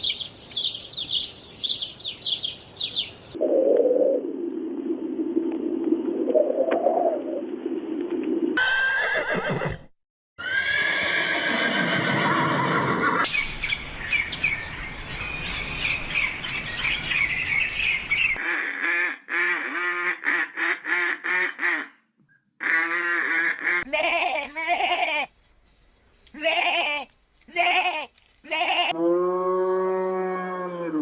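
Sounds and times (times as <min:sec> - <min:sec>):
horse whinnying: 0:08.6 - 0:13.3.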